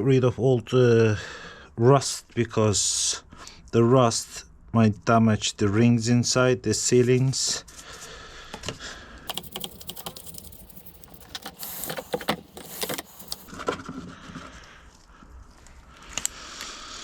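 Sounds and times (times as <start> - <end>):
scratchy rubbing on metal: 9.3 - 13.5.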